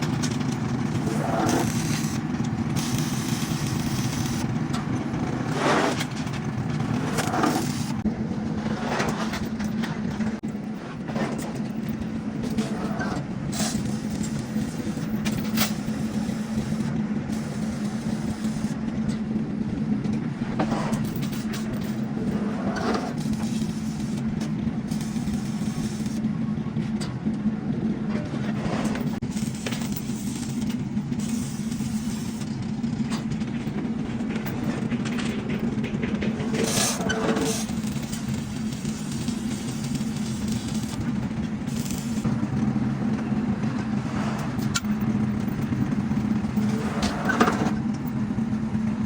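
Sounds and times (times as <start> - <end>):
machine drone with low hum: 0.0 - 49.0.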